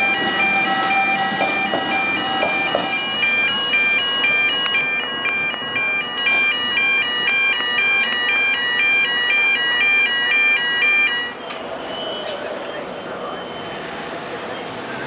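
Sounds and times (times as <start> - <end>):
electronic two-tone alarm: 0.0 - 11.4.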